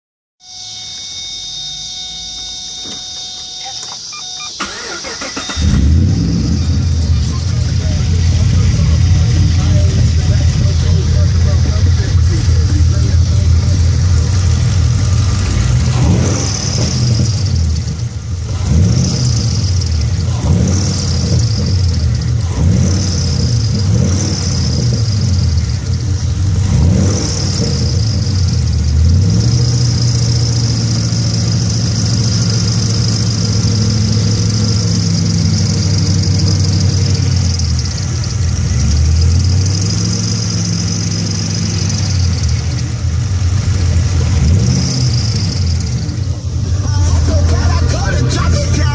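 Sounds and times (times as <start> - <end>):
high-pitched belt squeal: 0.4 - 5.7
car engine revving: 1.9 - 48.9.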